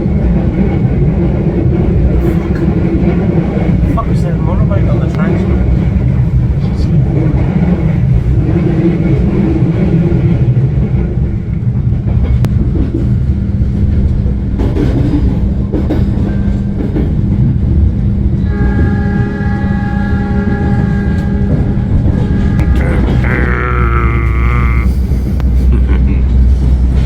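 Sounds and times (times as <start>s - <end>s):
train carriage rumble: 0.0s - 27.0s
train knocks: 11.6s - 23.4s.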